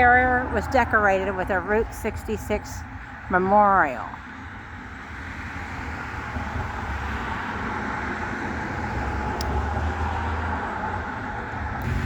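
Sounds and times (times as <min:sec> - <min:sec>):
motor vehicle passing: 0:05.0 - 0:12.0.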